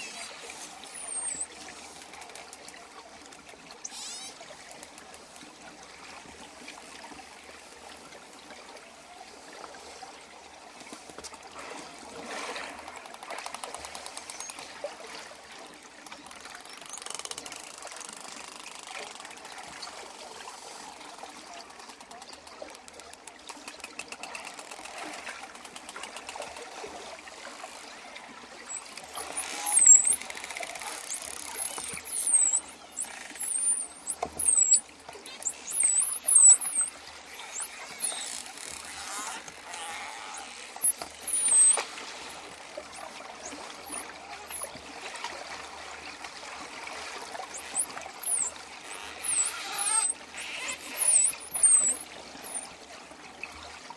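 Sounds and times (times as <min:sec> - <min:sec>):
dolphins whistling: 0:00.0 - 0:01.8, 0:03.8 - 0:04.4, 0:28.7 - 0:44.8, 0:47.3 - 0:52.7
rapid dolphin clicking: 0:00.0 - 0:07.1, 0:12.6 - 0:44.8, 0:47.0 - 0:52.7.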